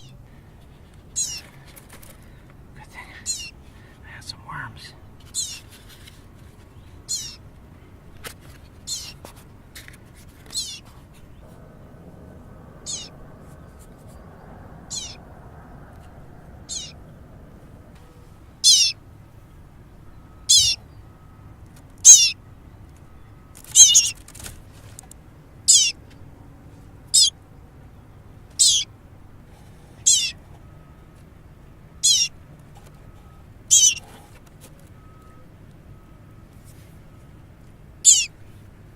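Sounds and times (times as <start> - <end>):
baby bird chirping: 1.2 - 1.5, 2.9 - 3.6, 4.2 - 5.7, 7.0 - 7.4, 8.8 - 9.2, 10.5 - 10.8, 12.8 - 13.2, 14.9 - 15.2, 16.7 - 17.0, 18.6 - 19.0, 20.4 - 20.9, 22.0 - 22.4, 23.7 - 24.2, 25.7 - 26.0, 27.1 - 27.3, 28.6 - 28.9, 30.0 - 30.4, 32.0 - 32.4, 33.7 - 34.0, 38.0 - 38.4.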